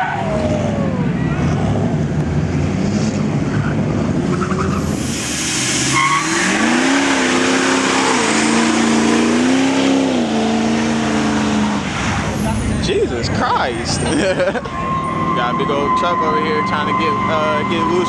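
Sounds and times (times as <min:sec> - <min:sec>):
car engine revving: 0:00.0 - 0:18.0
tyres squealing on pavement: 0:03.5 - 0:10.2, 0:10.8 - 0:18.0.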